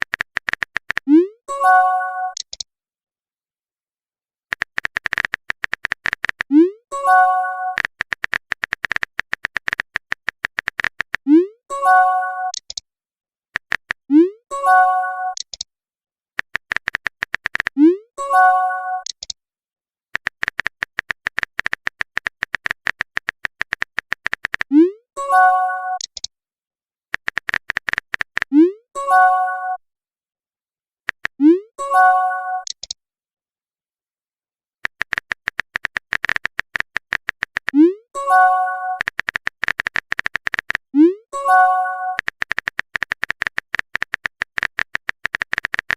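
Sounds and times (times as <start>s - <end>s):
typing clicks: 0.0s - 1.3s, 2.3s - 2.7s, 4.5s - 7.0s, 7.7s - 11.5s, 12.4s - 12.8s, 13.6s - 14.1s, 15.3s - 15.7s, 16.4s - 17.9s, 19.0s - 19.4s, 20.1s - 24.7s, 26.0s - 26.3s, 27.1s - 28.6s, 31.1s - 31.5s, 32.6s - 33.0s, 34.8s - 38.0s, 38.8s - 41.1s, 42.1s - 45.9s.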